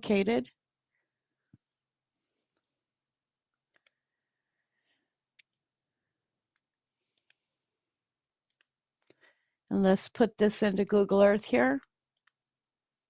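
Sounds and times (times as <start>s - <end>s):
computer mouse clicks: 3.6s - 4.0s, 6.5s - 7.4s, 8.4s - 8.8s, 11.8s - 12.4s.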